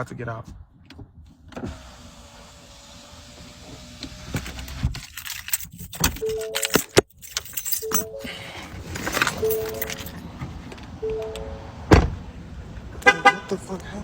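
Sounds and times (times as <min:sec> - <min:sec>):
keys jangling: 0:04.4 - 0:10.3.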